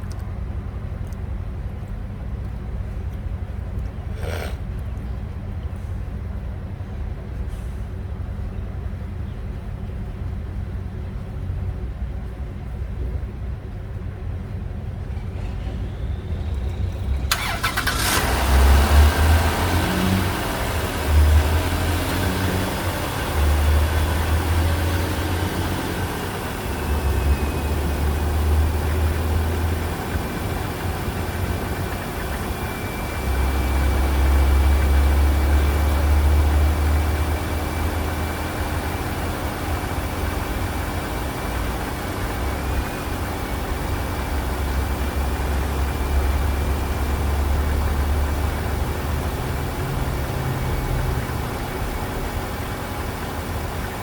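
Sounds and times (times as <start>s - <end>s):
car engine starting and idling: 0.0s - 54.0s.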